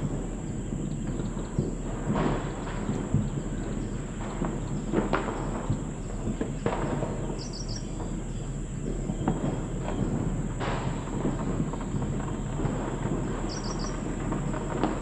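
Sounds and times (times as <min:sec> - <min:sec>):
steady high-pitched hiss: 0:00.0 - 0:15.0
bird chirps: 0:07.3 - 0:08.4, 0:13.5 - 0:14.0.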